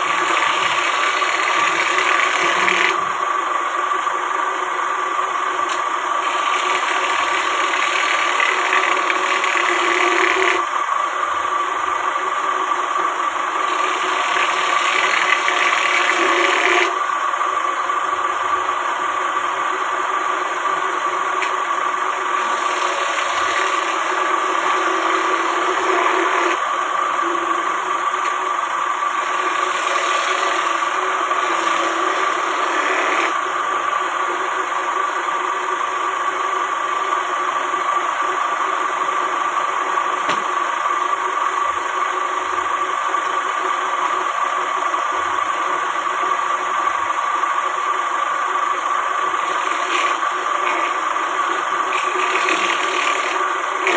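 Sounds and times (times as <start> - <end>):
power tool motor whining: 0.0 - 3.3, 5.4 - 10.7, 13.2 - 17.0, 20.8 - 33.5, 49.2 - 53.9.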